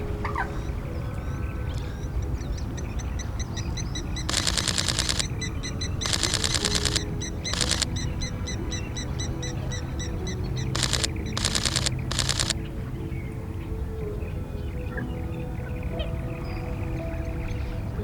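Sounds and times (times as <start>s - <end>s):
camera shutter bursts: 4.3s - 5.3s, 6.0s - 8.0s, 10.7s - 12.6s.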